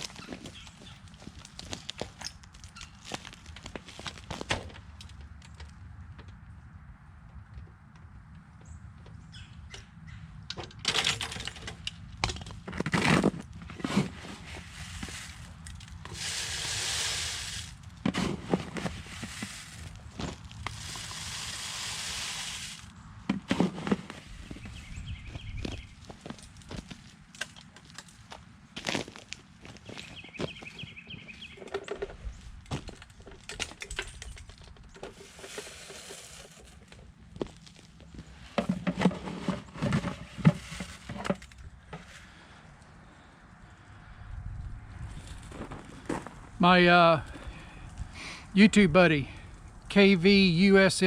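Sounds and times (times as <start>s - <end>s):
ice crunching and cracking: 0.0s - 5.7s, 12.2s - 24.7s, 25.6s - 30.9s, 34.4s - 38.3s
crunches and sharp cracks: 0.0s - 6.4s
short rushing hiss: 20.8s - 22.9s.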